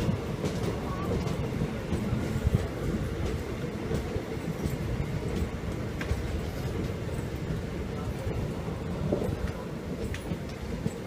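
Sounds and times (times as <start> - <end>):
train wheels on track: 0.0 - 11.0.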